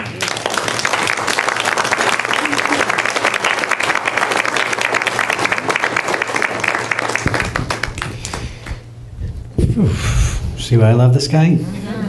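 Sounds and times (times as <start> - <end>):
crowd applauding: 0.0 - 8.8
low steady hum: 0.0 - 12.0.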